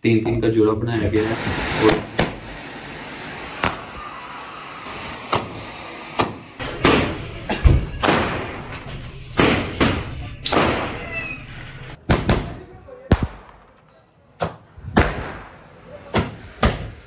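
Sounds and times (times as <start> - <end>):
steady hiss: 1.1 - 6.6
fireworks bangs: 1.1 - 17.0.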